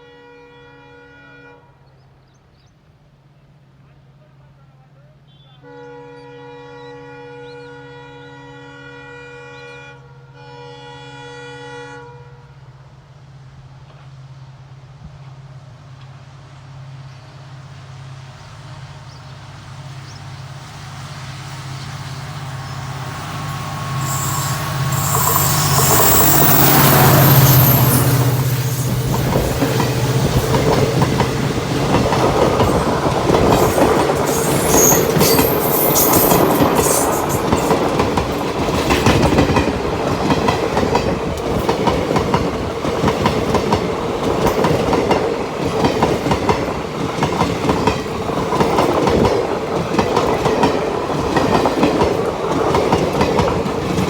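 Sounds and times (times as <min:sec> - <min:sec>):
locomotive horn: 0:00.0 - 0:01.8, 0:05.3 - 0:12.6, 0:22.3 - 0:37.7
train wheels clickety-clack: 0:21.7 - 0:54.0.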